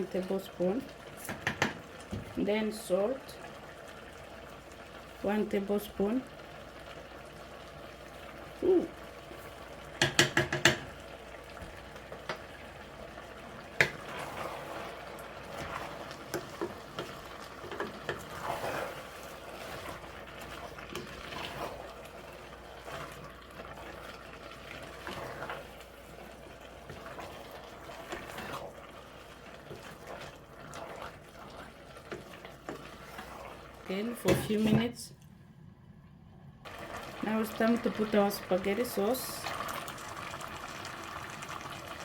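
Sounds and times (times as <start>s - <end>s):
pot bubbling and sizzling: 0.0s - 42.0s
utensil knocks: 10.0s - 10.9s.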